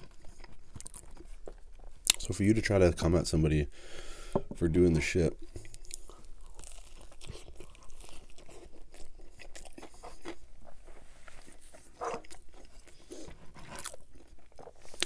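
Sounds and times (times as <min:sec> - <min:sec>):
crunchy pizza chewing: 0:00.0 - 0:02.4, 0:05.4 - 0:15.0.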